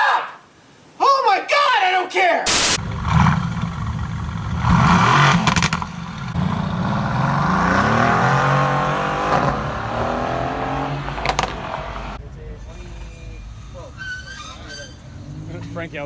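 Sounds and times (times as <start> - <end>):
engine cracks: 2.8 - 6.5, 11.0 - 12.1
car engine revving: 2.8 - 12.2.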